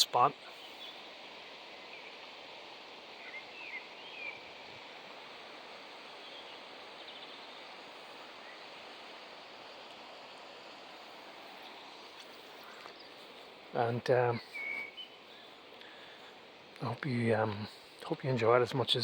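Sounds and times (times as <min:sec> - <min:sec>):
river water rushing: 0:00.0 - 0:19.0
bird chirps: 0:03.2 - 0:04.5, 0:14.2 - 0:16.0.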